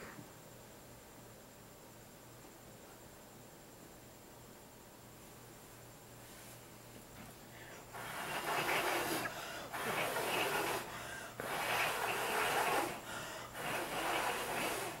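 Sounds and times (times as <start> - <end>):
person blowing breathy puffs: 7.7 - 15.0.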